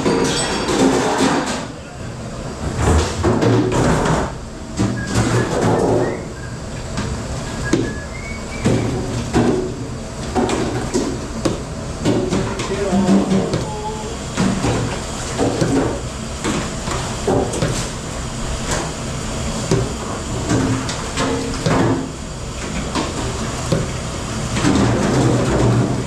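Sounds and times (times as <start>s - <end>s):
dishes and trays clattering: 0.0s - 1.8s.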